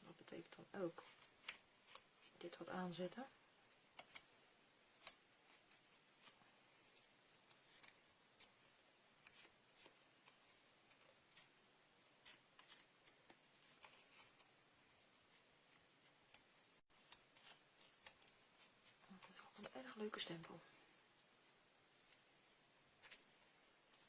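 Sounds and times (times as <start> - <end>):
paper-crafting clicks and snips: 1.0 - 2.1, 3.7 - 4.4, 5.0 - 6.4, 7.4 - 11.5, 16.0 - 18.4.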